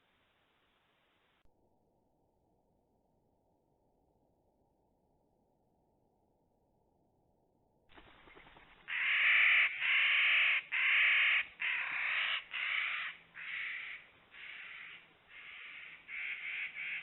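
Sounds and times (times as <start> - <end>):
bird's harsh crow-like calls: 8.0 - 17.0.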